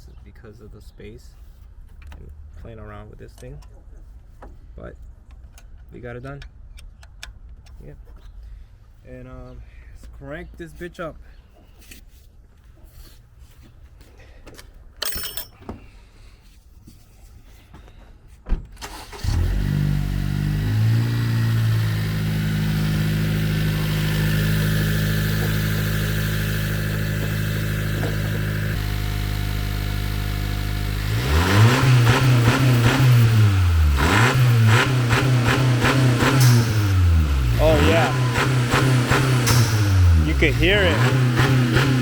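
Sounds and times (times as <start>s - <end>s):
car engine starting: 18.8s - 42.0s
car engine revving: 18.9s - 42.0s
car engine idling: 20.1s - 42.0s.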